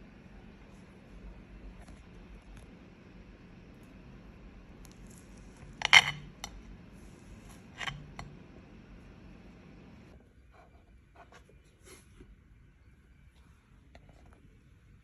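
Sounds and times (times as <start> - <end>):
kitchenware clattering: 5.8 - 6.5.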